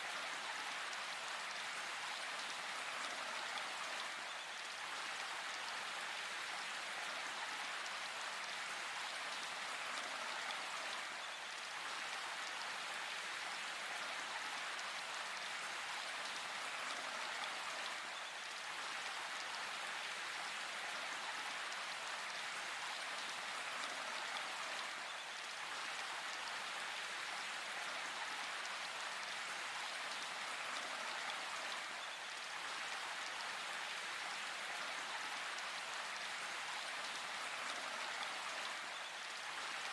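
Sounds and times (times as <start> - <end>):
rain falling in forest: 0.0 - 39.9.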